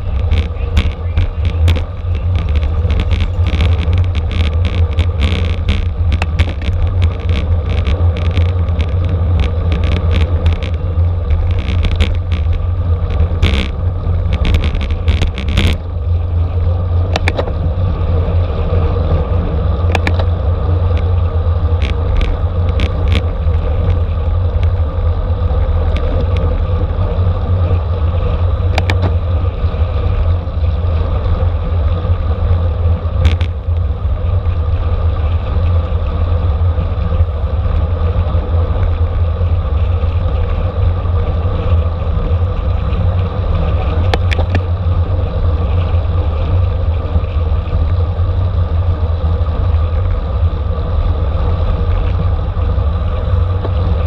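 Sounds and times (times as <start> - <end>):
bicycle road rumble: 0.0 - 54.0
sharp clicks and rattles: 0.0 - 54.0.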